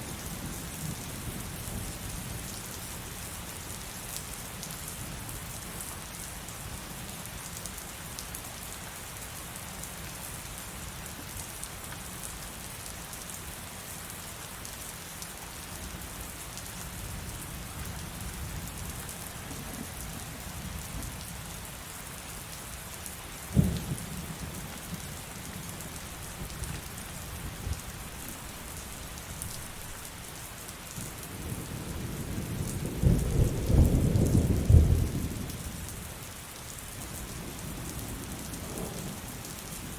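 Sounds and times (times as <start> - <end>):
sharp thunderclap: 23.6 - 24.0
deep roll of thunder: 31.5 - 35.5.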